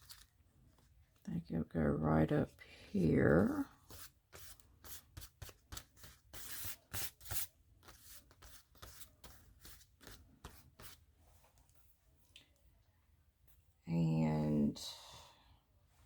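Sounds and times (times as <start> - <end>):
paper rustling and crackling: 0.0 - 0.9.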